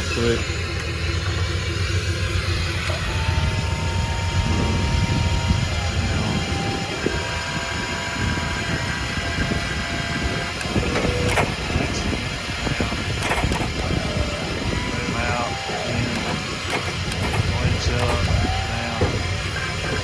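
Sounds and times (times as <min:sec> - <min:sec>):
crane motor whine: 0:00.0 - 0:20.0
low rumble: 0:00.0 - 0:20.0
sharp clicks and knocks: 0:10.5 - 0:14.4, 0:15.8 - 0:20.0.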